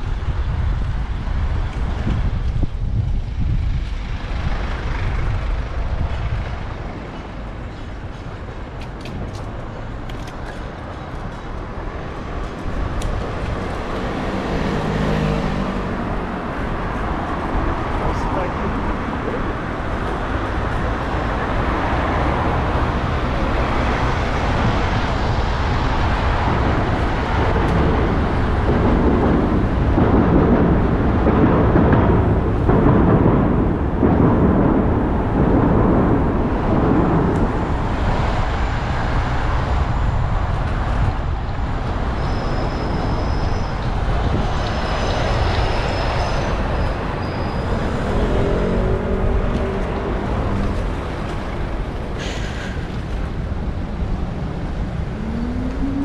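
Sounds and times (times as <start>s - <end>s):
bicycle riding noise: 0.0s - 56.0s
road traffic rumble: 0.0s - 56.0s
wind: 0.0s - 56.0s.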